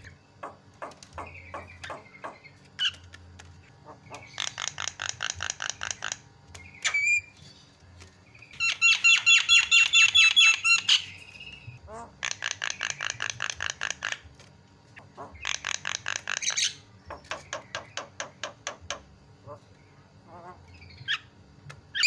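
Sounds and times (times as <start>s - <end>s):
myna bird harsh calls: 0.8s - 7.4s, 8.5s - 14.2s, 15.0s - 18.8s.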